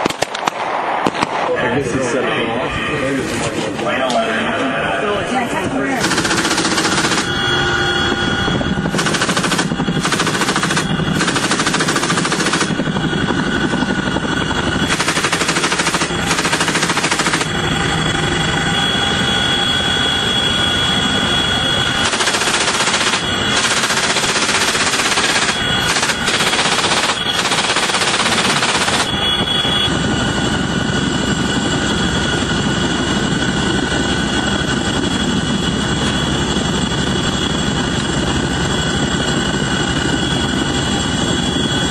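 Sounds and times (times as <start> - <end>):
helicopter engine and rotor: 1.0 - 41.9
machine gun bursts: 6.0 - 7.3, 8.9 - 12.7, 14.9 - 17.6, 22.0 - 29.1.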